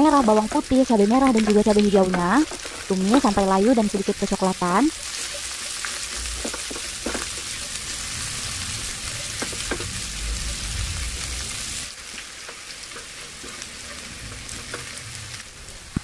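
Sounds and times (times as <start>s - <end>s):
vegetables sizzling in hot oil: 0.0s - 16.0s
spatula scraping and tapping pan: 1.2s - 3.6s, 4.8s - 8.0s, 12.4s - 15.0s.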